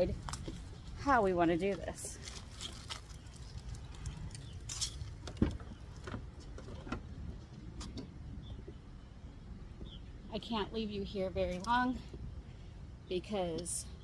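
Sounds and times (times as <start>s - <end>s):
camping gear clicking and clinking: 1.6s - 8.2s.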